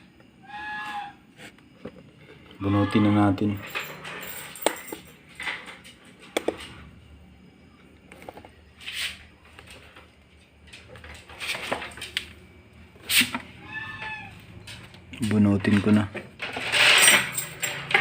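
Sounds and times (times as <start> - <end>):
faint steady hum: 0.0 - 18.0
scraping and rustling: 15.6 - 18.0.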